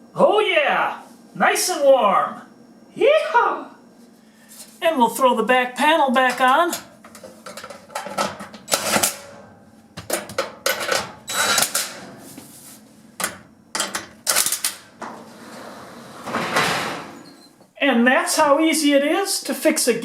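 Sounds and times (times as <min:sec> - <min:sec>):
metallic clattering knocks: 0:06.3 - 0:12.2
sheet metal scraping: 0:07.1 - 0:12.8, 0:14.7 - 0:17.6.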